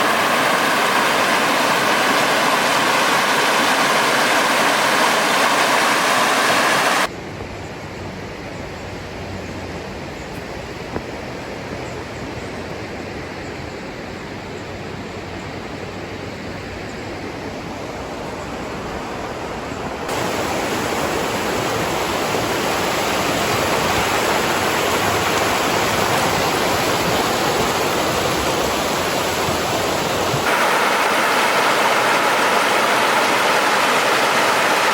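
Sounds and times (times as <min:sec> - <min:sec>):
river rushing through a gorge: 0:00.0 - 0:07.1, 0:20.0 - 0:34.9.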